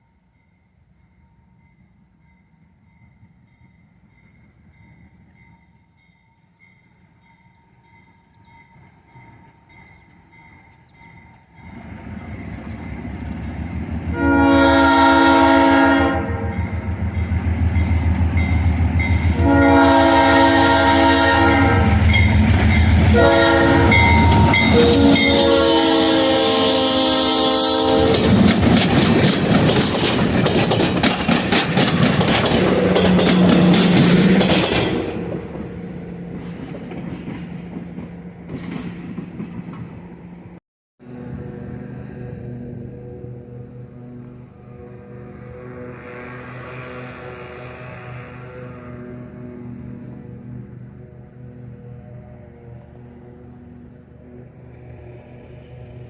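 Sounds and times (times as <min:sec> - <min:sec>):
train passing: 0:00.0 - 0:56.0
diesel locomotive rumble: 0:07.9 - 0:56.0
train horn blasts: 0:14.1 - 0:17.3, 0:18.4 - 0:28.4, 0:41.0 - 0:56.0
crossing bell dinging: 0:16.3 - 0:25.8.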